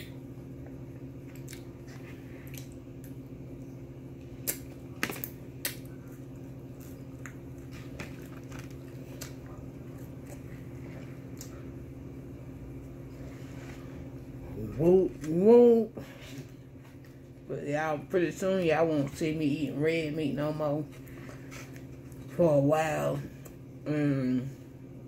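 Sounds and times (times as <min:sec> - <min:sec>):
low hum: 0:00.0 - 0:25.0
chewing fried chicken: 0:00.6 - 0:12.1.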